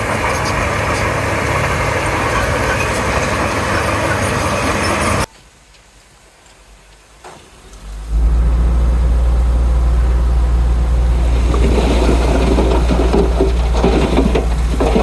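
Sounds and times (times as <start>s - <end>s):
bulldozer diesel engine running: 0.0s - 5.3s, 7.8s - 15.0s
short knocks: 11.1s - 15.0s.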